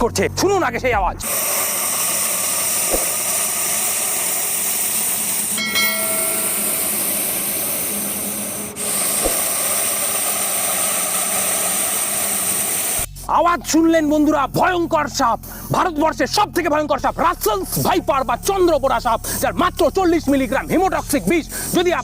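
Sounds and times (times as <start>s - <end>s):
snake hissing: 1.2s - 13.3s.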